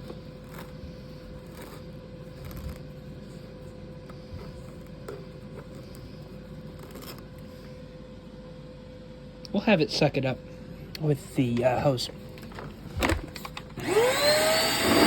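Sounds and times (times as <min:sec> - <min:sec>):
light clicks and scrapes: 0:00.0 - 0:03.4, 0:04.1 - 0:07.5
vacuum cleaner humming: 0:13.8 - 0:15.0.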